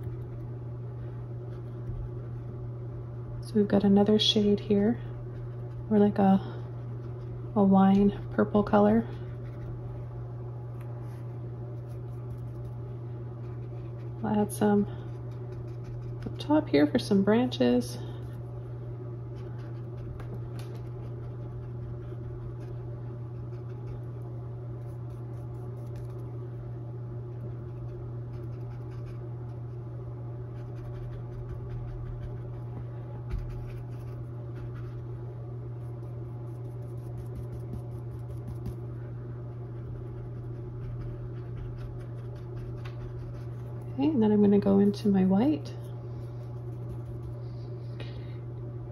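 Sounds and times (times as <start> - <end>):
steady low hum: 0.0 - 48.9
paintbrush scratching on canvas: 15.1 - 16.4, 35.8 - 38.8.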